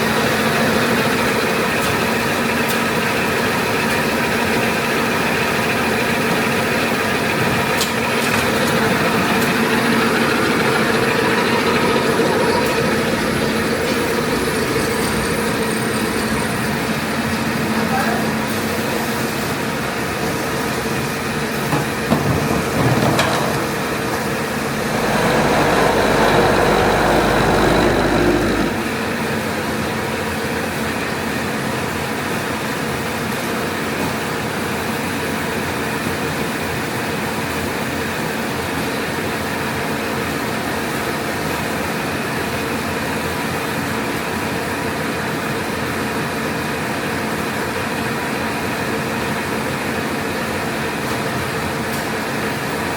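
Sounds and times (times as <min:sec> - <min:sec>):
rewinder machine running: 0:00.0 - 0:17.7, 0:20.3 - 0:30.2.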